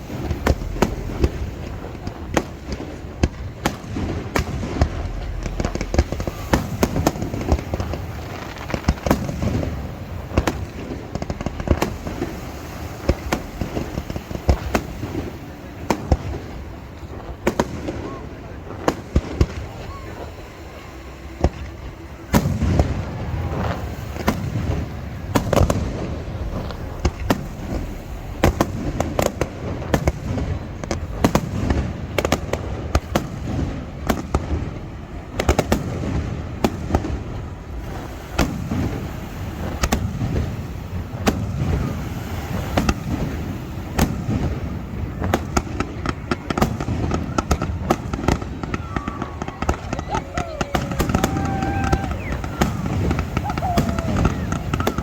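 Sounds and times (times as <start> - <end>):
fireworks cracks and booms: 0.0 - 55.0
rumble of overlapping explosions: 0.0 - 55.0.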